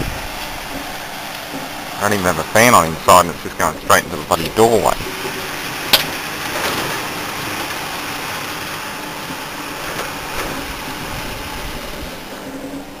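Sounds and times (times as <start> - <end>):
microwave oven humming: 4.7 - 13.0.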